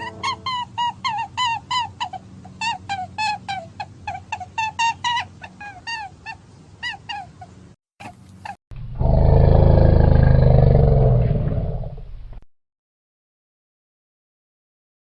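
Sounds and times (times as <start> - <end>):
big cat roaring: 8.8 - 12.0.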